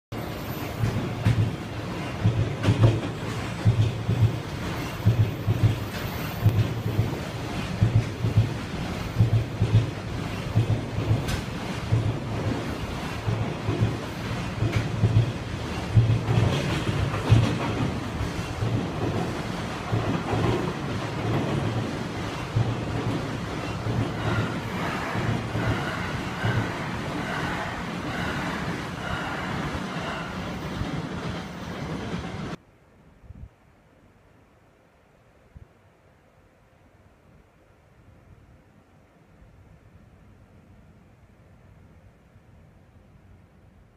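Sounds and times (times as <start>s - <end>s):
train rumbling: 0.1s - 32.6s
wheels thumping over rail joints: 0.8s - 27.4s.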